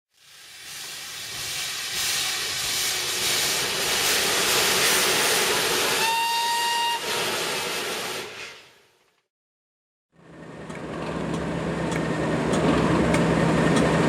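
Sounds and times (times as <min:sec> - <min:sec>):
diesel locomotive passing: 0:00.2 - 0:08.3, 0:10.2 - 0:14.0
train horn blast: 0:05.9 - 0:07.2.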